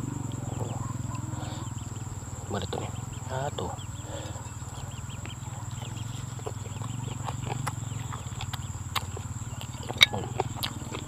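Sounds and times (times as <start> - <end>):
low pulsing drone: 0.0 - 11.0
person chewing: 5.2 - 11.0.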